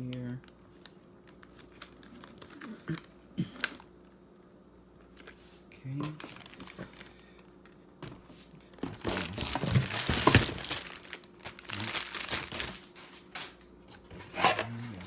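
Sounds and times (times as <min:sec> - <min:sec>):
packaging crinkling: 0:00.0 - 0:03.9, 0:06.0 - 0:07.8, 0:08.7 - 0:13.6.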